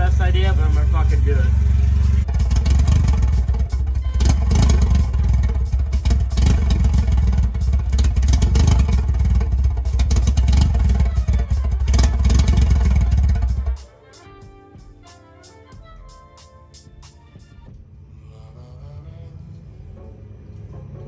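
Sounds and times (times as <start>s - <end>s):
car engine running loud: 0.0s - 13.8s
exhaust pops and crackles: 0.0s - 13.8s.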